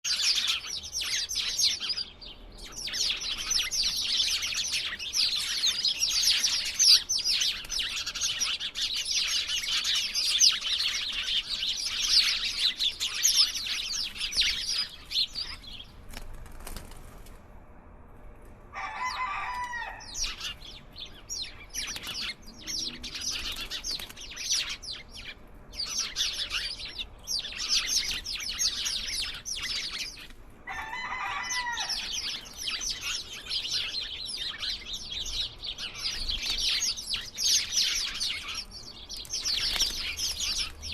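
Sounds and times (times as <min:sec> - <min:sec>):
small birds chirping: 0:00.0 - 0:17.1, 0:18.9 - 0:40.9
wing flutters: 0:16.0 - 0:17.5.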